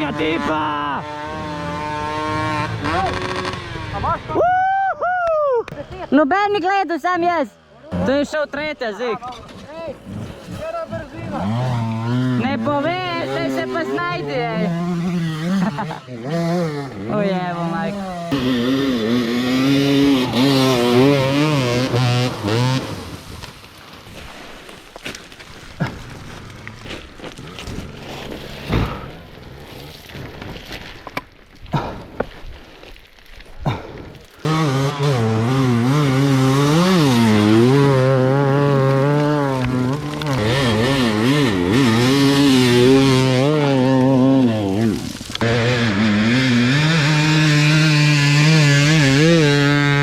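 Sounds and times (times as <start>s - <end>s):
dirt bike engine revving: 0.0s - 4.3s, 10.0s - 23.3s, 34.4s - 50.0s.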